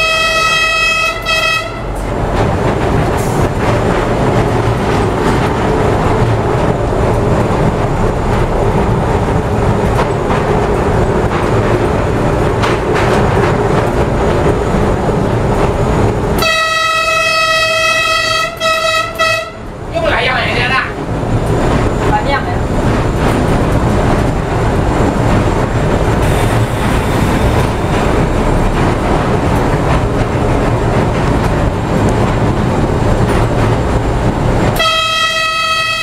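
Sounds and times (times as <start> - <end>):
train horn: 0.0 - 1.9, 16.4 - 19.7, 34.8 - 36.0
train rumbling in tunnel: 0.0 - 36.0.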